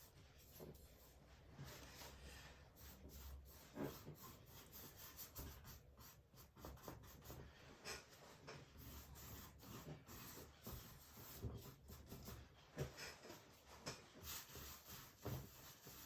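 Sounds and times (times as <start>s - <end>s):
paintbrush dabbing on canvas: 14.1s - 16.0s.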